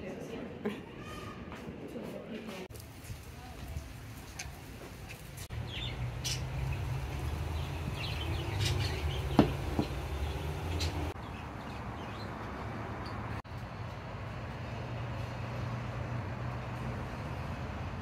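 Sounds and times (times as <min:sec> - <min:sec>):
small birds chirping: 0:05.1 - 0:13.2.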